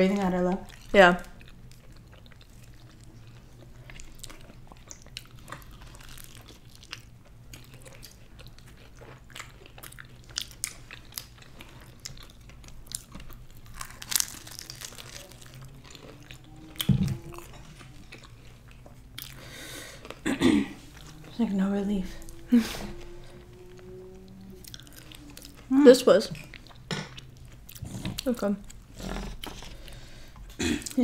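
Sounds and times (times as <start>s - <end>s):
person chewing food: 0.6s - 21.5s, 22.1s - 31.0s.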